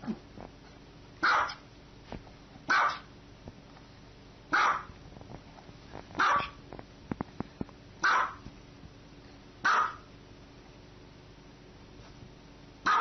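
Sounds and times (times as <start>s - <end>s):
small dog barking: 1.2s - 1.6s, 2.7s - 3.1s, 4.5s - 5.0s, 6.2s - 6.6s, 8.0s - 8.4s, 9.6s - 10.1s.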